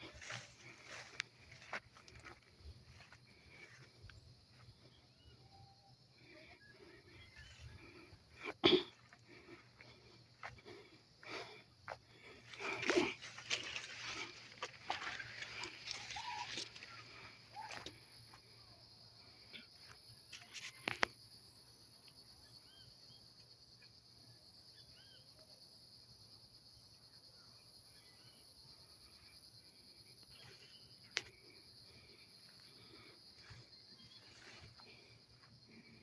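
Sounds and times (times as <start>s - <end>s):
high insect drone: 0.0s - 36.0s
faint bird chirps: 24.7s - 25.6s.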